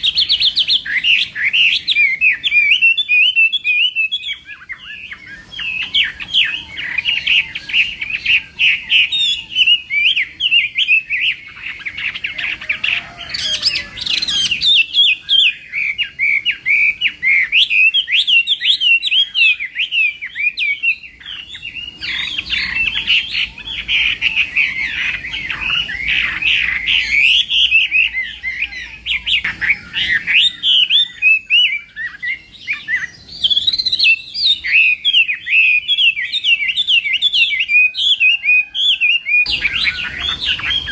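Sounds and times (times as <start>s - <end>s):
bird warbling song: 0.0s - 40.9s.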